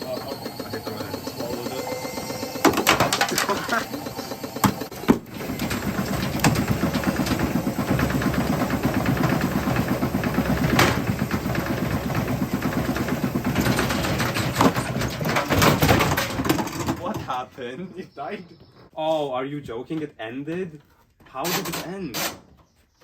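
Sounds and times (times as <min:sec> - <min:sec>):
washing machine running: 0:00.0 - 0:17.4
objects rattling in drum: 0:02.4 - 0:17.4.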